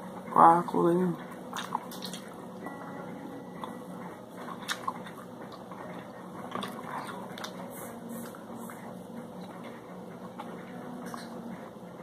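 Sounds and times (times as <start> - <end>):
faint steady hum: 0.0 - 12.0
person chewing: 1.5 - 2.3, 4.4 - 8.8.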